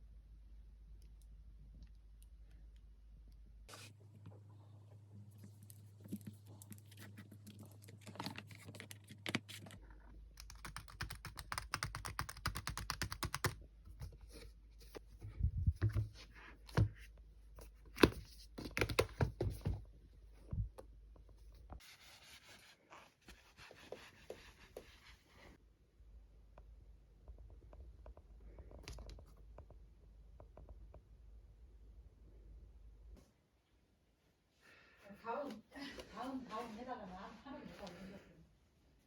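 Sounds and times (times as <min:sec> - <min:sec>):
typing on a keyboard: 0:10.4 - 0:13.6.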